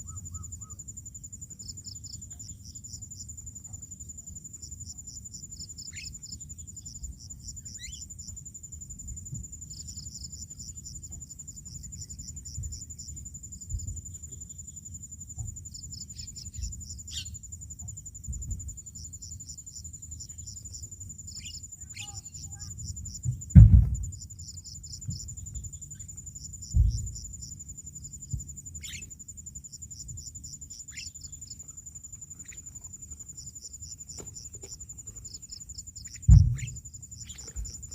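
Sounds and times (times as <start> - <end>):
pulsing chirp: 0.0 - 1.0, 9.7 - 23.5, 24.1 - 37.9
insect trill: 0.0 - 37.9
heavy thumps: 23.2 - 24.2, 26.7 - 27.2, 36.3 - 36.8.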